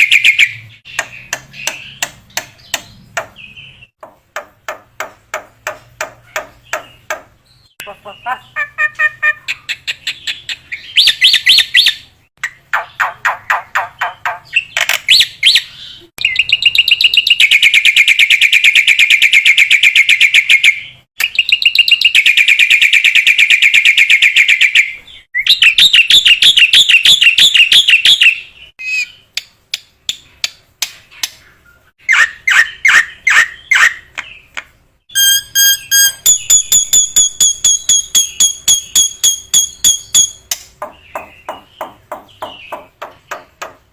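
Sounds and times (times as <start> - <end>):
high whistled bird notes: 0.0 - 2.0, 10.8 - 12.1, 14.6 - 29.3, 32.0 - 34.1, 35.1 - 40.5
songbird chattering trills: 6.2 - 11.8.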